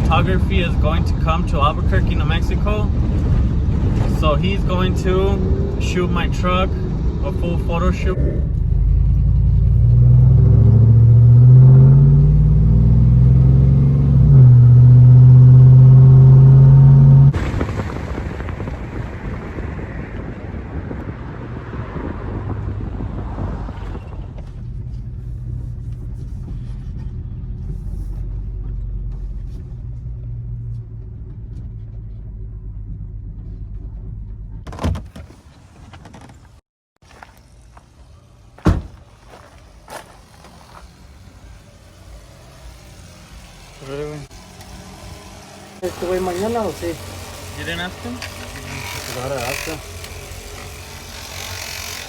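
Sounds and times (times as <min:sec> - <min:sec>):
truck engine droning: 0:00.0 - 0:19.0, 0:37.0 - 0:52.0
rushing road noise: 0:00.0 - 0:52.0.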